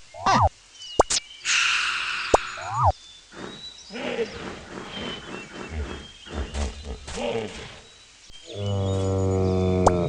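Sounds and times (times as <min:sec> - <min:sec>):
long low animal call: 0:03.4 - 0:07.8, 0:08.4 - 0:10.0.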